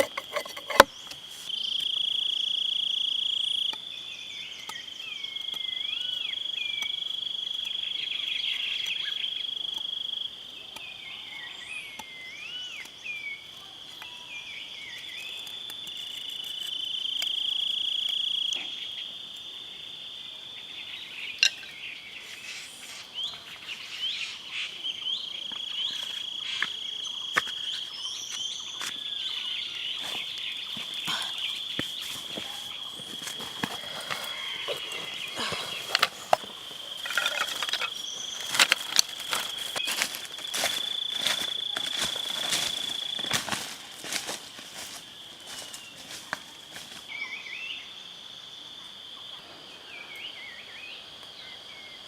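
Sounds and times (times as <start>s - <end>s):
bird calls: 20.9s - 43.6s.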